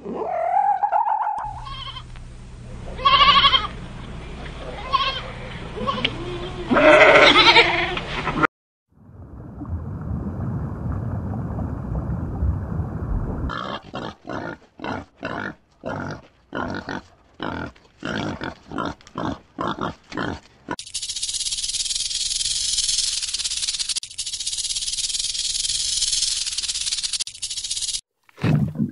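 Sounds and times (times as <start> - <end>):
low rumbling noise: 8.9 - 13.5
pigs grunting: 13.5 - 20.8.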